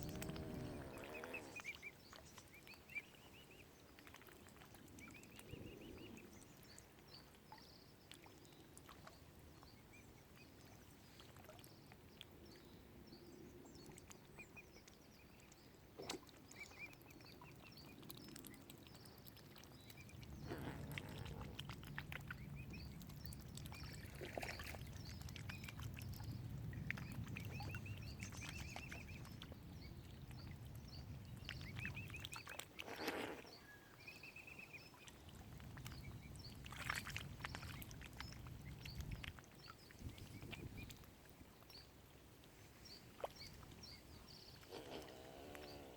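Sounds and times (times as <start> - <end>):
birds chirping: 0.0 - 1.9, 43.8 - 45.9.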